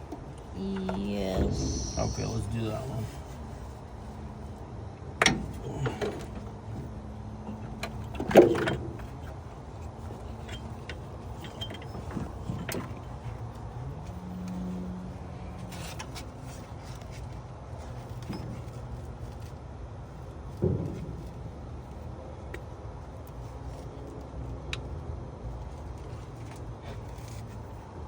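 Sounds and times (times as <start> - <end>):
low hum: 0.5 - 3.3.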